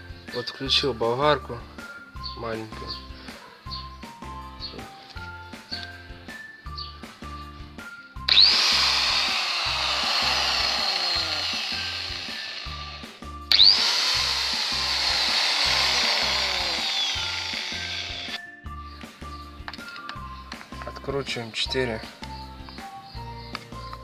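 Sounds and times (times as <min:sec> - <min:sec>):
angle grinder motor whining: 0:08.3 - 0:18.4.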